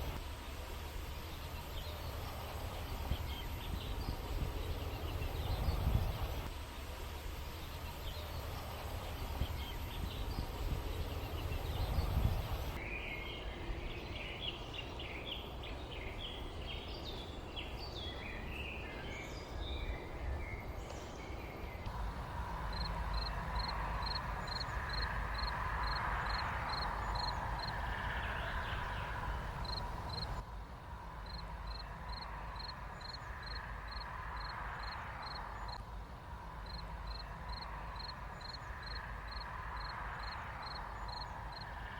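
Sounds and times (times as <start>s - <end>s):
small birds chirping: 0.0s - 30.4s, 31.0s - 41.9s.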